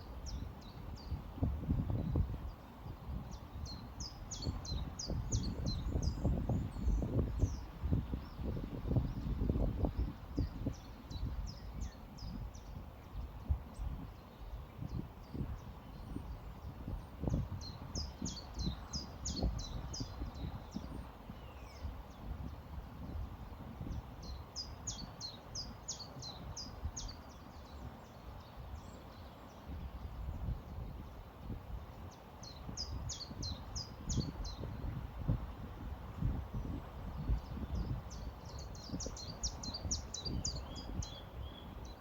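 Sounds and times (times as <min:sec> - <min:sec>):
songbird singing: 0:00.0 - 0:42.0.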